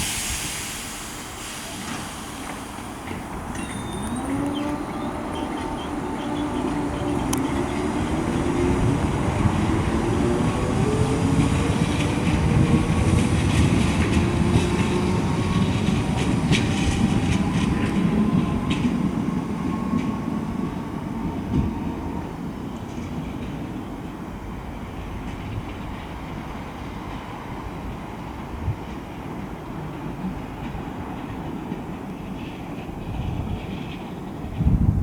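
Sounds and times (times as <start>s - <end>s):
train rumble: 0.0s - 35.0s
traction motors whining: 2.4s - 9.2s.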